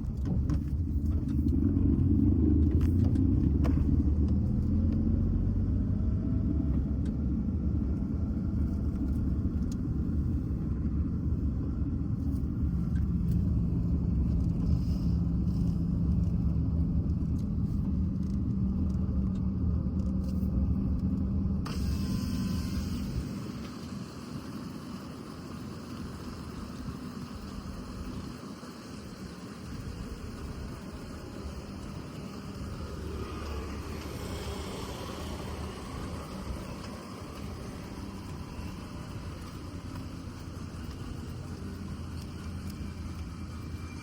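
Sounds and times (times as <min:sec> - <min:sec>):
vehicle road and engine rumble: 0:00.0 - 0:44.0
bright hiss: 0:21.7 - 0:44.0.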